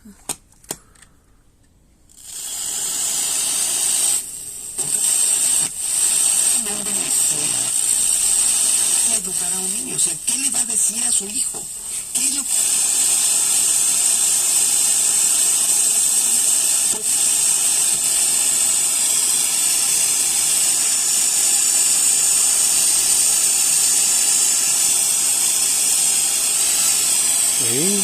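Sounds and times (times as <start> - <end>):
amplifier static hiss: 3.2 - 13.4, 16.3 - 28.0.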